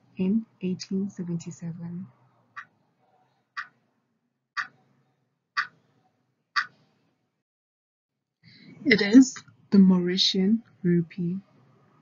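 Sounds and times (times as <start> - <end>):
clock ticking: 3.6 - 3.8, 4.6 - 4.8, 5.6 - 5.8, 6.6 - 6.8.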